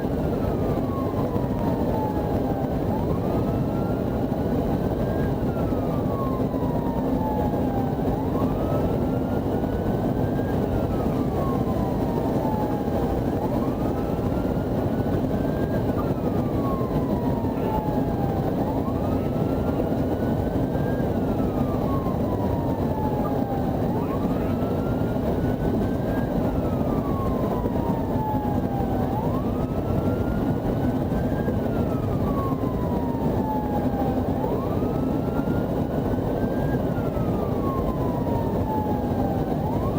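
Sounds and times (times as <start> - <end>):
police siren wailing: 0.0 - 39.9
road and engine noise: 0.0 - 39.9.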